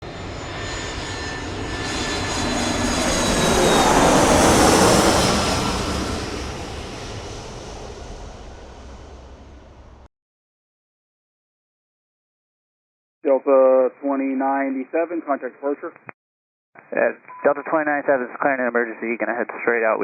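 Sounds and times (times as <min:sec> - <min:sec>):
high engine whine: 0:00.0 - 0:10.1
jet airliner passing overhead: 0:00.0 - 0:10.1.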